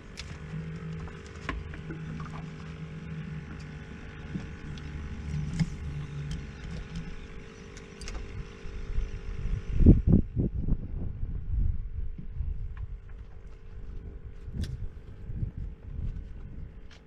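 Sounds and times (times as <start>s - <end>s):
boat motor running: 0.0s - 10.4s
low rumble: 8.2s - 17.0s.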